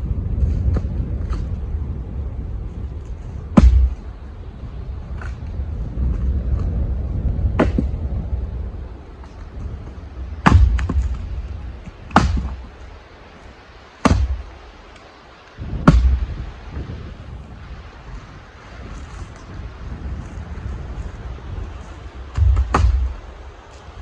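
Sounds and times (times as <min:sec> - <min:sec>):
wind rumbling on microphone: 0:00.0 - 0:24.0
firewood knocking: 0:03.5 - 0:04.1, 0:07.5 - 0:08.0, 0:10.4 - 0:11.3, 0:12.1 - 0:12.7, 0:14.0 - 0:14.5, 0:15.8 - 0:16.4, 0:22.3 - 0:23.3.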